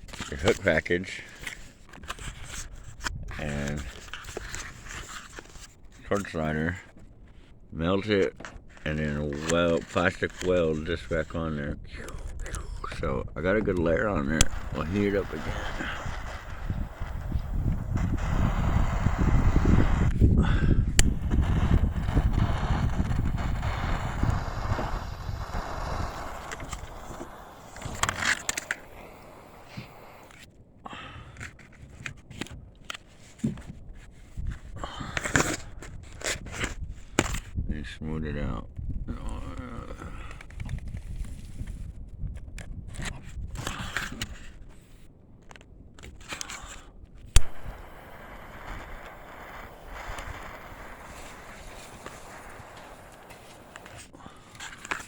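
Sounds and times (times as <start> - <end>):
torch flame rushing: 13.6 - 30.4, 47.3 - 55.0
steady hiss: 13.9 - 30.5, 47.3 - 55.0
sharp click: 21.0 - 21.4.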